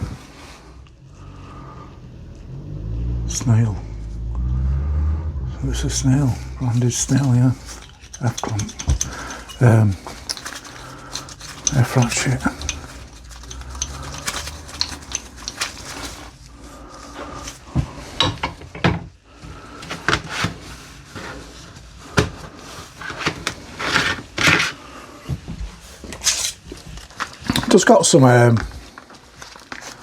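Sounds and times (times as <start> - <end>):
hard objects knocking and clattering: 7.0 - 16.4, 17.7 - 19.1.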